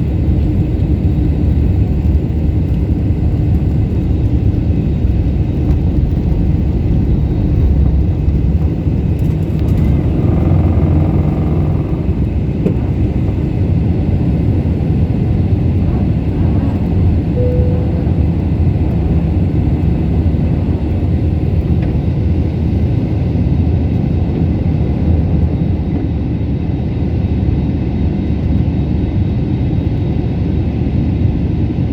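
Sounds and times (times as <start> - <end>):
airliner engines rumbling: 0.0 - 31.9
short faint tone: 17.4 - 19.1.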